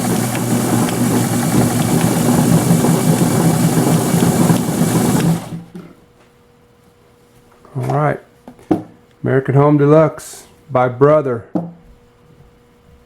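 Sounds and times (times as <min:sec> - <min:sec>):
sewing machine stitching: 0:00.0 - 0:05.7.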